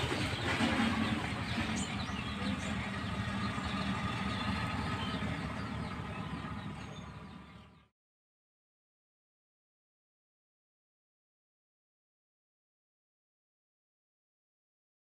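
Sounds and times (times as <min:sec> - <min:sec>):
motor engine running: 0:00.0 - 0:07.9
outdoor background noise: 0:00.0 - 0:07.9.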